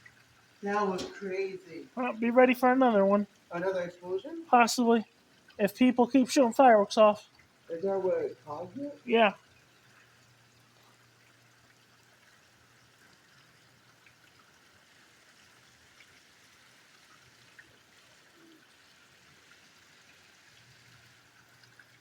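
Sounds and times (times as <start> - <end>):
raindrop ticks: 0.0 - 9.4
faint steady rain: 0.0 - 22.0.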